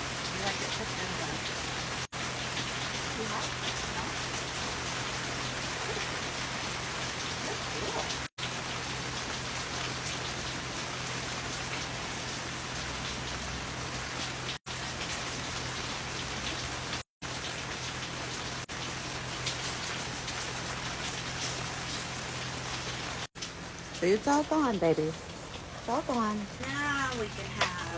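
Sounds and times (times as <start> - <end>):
rain falling: 0.0 - 27.9.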